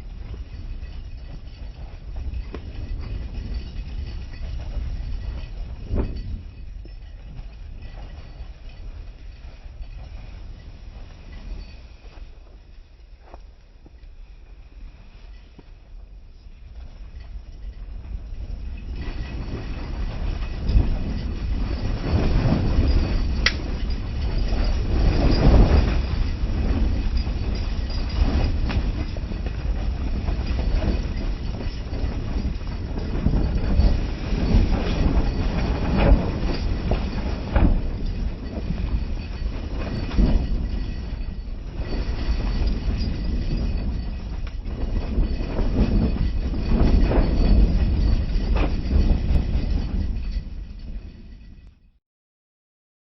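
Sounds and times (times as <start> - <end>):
train rumbling on rails: 0.0 - 51.7.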